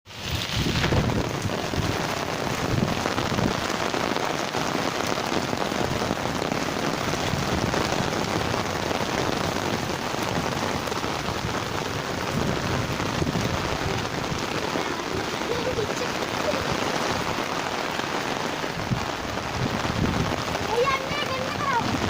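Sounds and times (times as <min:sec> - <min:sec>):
heavy rain pattering: 0:00.1 - 0:22.0.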